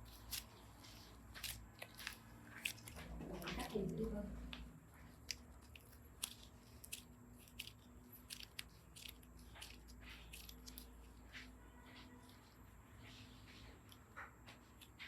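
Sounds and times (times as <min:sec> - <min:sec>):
slime clicking and crackling: 0:00.0 - 0:11.4.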